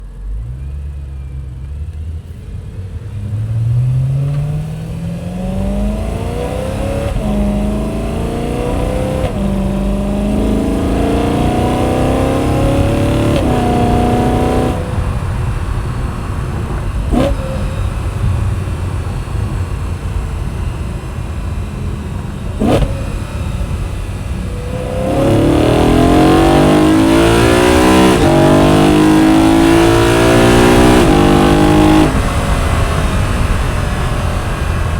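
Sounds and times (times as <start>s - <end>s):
car engine accelerating through gears: 0.0s - 34.9s.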